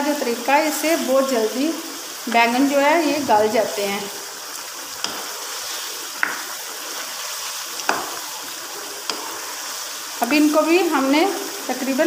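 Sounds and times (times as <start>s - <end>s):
curry sizzling in a wok: 0.0s - 12.0s
wooden spoon knocking on pan: 6.2s - 6.4s, 7.8s - 8.2s.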